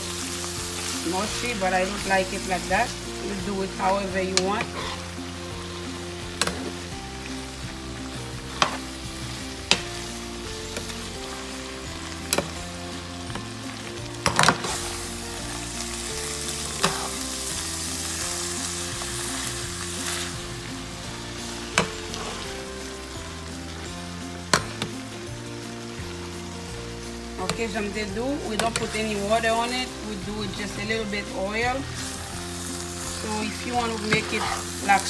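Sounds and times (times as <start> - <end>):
food sizzling in a frying pan: 0.0 - 35.0
metal spoon stirring: 33.5 - 34.8.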